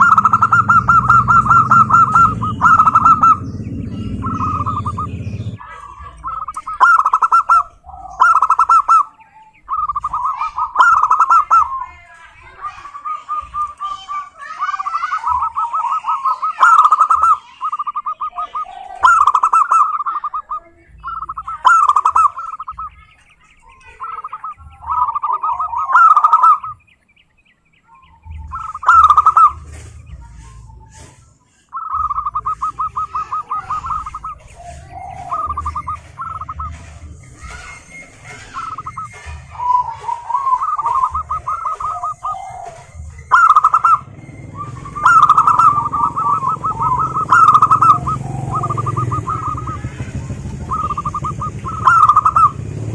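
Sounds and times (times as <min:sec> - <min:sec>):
low rumble: 0:00.0 - 0:08.3, 0:28.0 - 0:52.9
doves cooing: 0:00.0 - 0:52.9.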